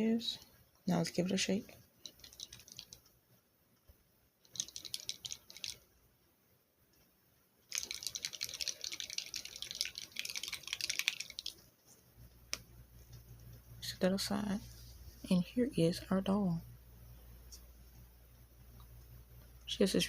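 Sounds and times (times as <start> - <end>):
water sloshing in shaken plastic tube: 7.7 - 11.6.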